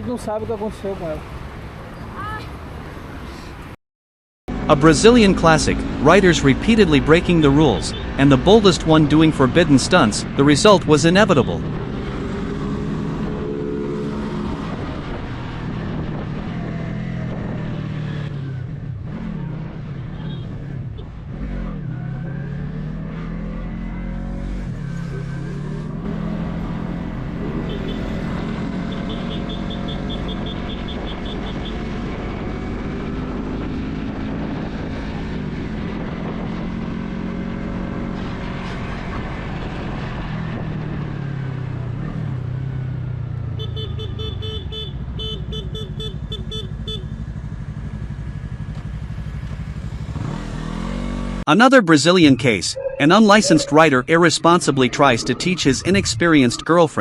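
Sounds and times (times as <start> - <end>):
motorcycle engines revving: 4.5 - 57.0
horn short beeps: 52.2 - 54.4.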